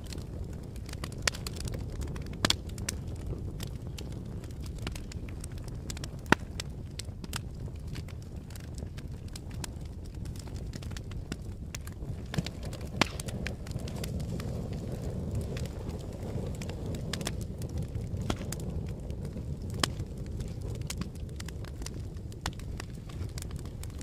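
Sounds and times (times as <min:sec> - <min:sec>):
fire roaring and crackling: 0:00.0 - 0:24.0
sharp loud pops of fire: 0:05.9 - 0:06.7, 0:11.7 - 0:23.9.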